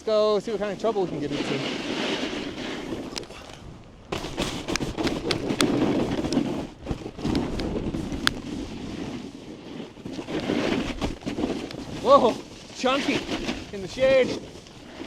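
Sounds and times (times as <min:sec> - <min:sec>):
snowboard scraping over snow: 0:00.0 - 0:15.0
board and gear clicking and knocking: 0:04.1 - 0:08.5, 0:10.1 - 0:15.0.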